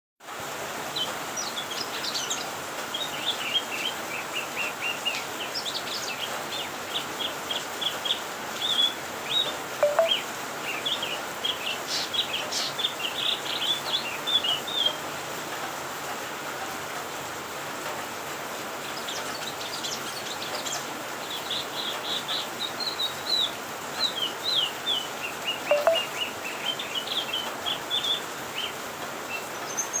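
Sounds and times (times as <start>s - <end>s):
bird chirping and twittering: 3.0s - 15.0s, 19.0s - 28.7s.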